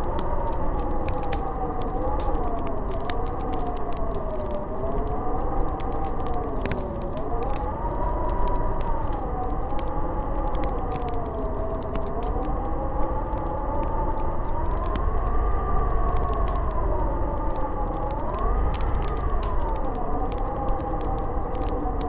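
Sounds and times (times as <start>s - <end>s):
wind howling and whistling: 0.0s - 22.0s.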